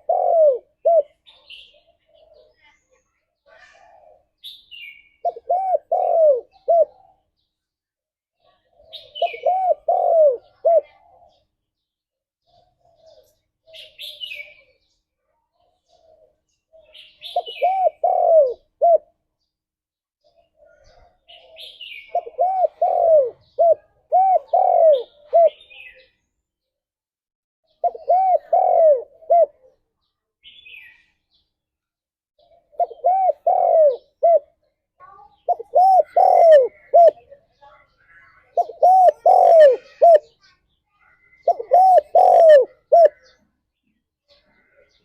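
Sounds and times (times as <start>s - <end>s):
doves cooing: 0.0s - 1.3s, 5.2s - 7.2s, 8.8s - 11.4s, 15.9s - 19.2s, 20.6s - 26.0s, 27.8s - 29.8s, 32.7s - 34.6s, 35.4s - 37.3s, 38.5s - 40.4s, 41.4s - 43.4s
small birds chirping: 0.0s - 26.8s, 27.6s - 45.0s.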